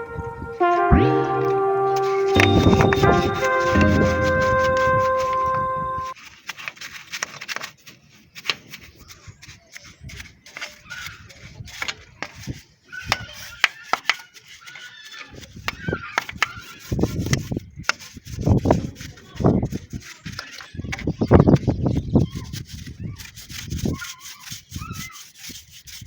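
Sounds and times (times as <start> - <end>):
music: 0.0 - 6.2.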